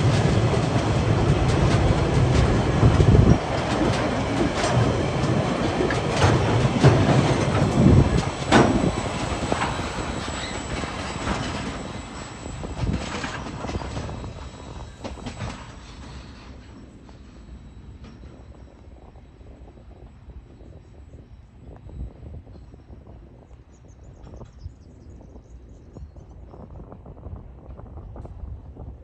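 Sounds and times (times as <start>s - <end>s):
wheels clicking over rail joints: 0.0s - 18.9s
train wagons rolling past: 0.0s - 24.6s.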